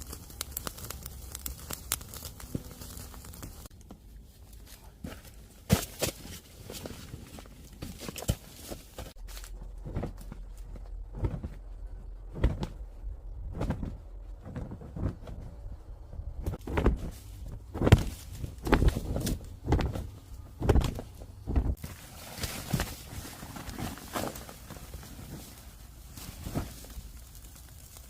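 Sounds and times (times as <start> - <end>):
knocks and thuds: 17.7 - 21.8.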